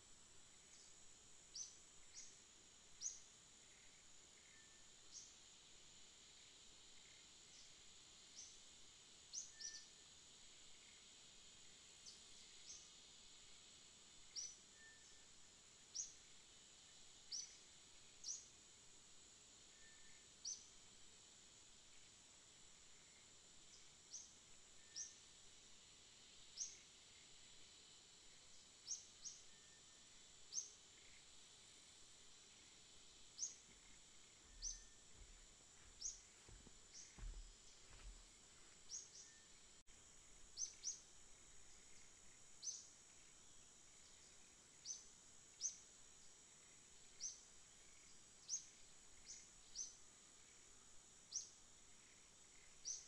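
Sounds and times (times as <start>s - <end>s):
faint high-pitched whine: 0.0s - 53.0s
bird chirping: 33.4s - 39.6s.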